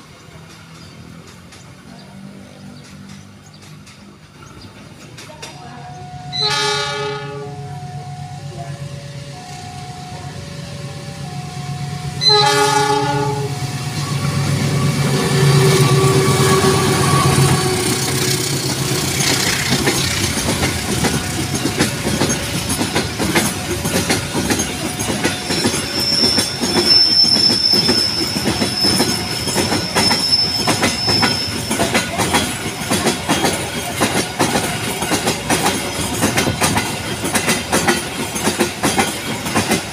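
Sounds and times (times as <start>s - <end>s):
two-tone crossing signal: 5.9s - 17.7s
train horn: 6.3s - 9.2s, 12.0s - 13.8s, 15.3s - 18.1s
high wheel squeal: 14.0s - 20.2s, 24.6s - 32.2s.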